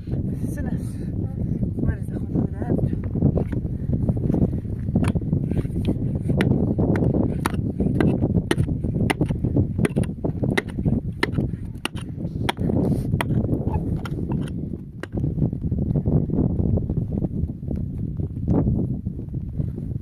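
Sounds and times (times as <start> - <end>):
wind on microphone: 0.0 - 20.0
hand tool knocking: 6.4 - 12.6.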